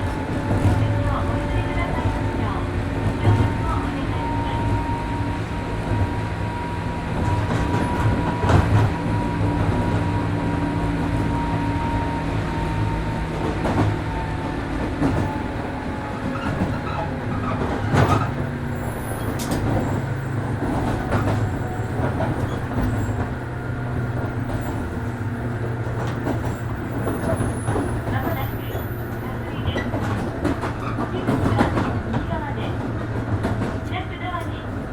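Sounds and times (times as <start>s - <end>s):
train motor hum: 0.0s - 34.9s
wheels clicking over rail joints: 12.7s - 34.8s.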